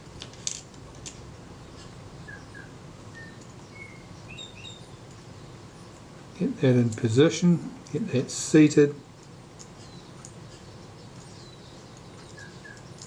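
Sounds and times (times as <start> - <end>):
faint bird chirps: 1.6 - 6.0, 9.8 - 13.0.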